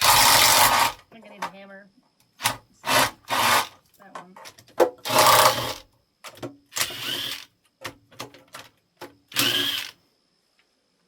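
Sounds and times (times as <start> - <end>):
cordless power tool whirring: 0.0 - 1.0, 2.4 - 3.7, 5.0 - 5.8, 6.7 - 7.5, 9.3 - 10.0
small clicks and knocks: 7.6 - 9.2.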